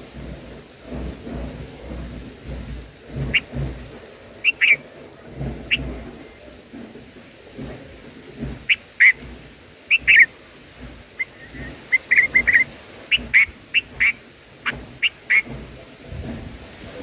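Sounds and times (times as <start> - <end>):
bird chirping: 4.4 - 4.8, 9.9 - 10.3, 11.2 - 15.5.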